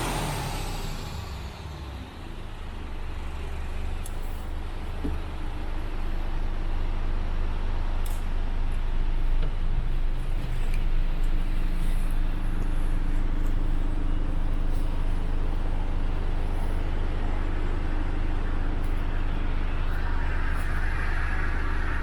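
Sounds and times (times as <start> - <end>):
diesel engine idling: 0.0 - 22.0
higher rushing sound: 13.9 - 22.0.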